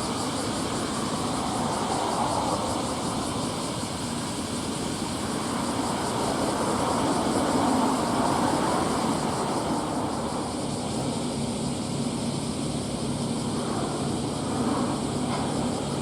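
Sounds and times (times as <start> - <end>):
rushing wake: 0.0 - 11.0.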